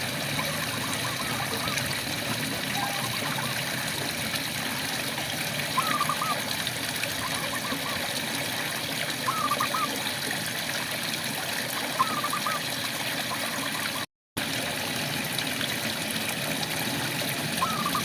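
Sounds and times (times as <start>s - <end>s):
frogs chirping: 5.8s - 6.4s, 17.6s - 18.0s.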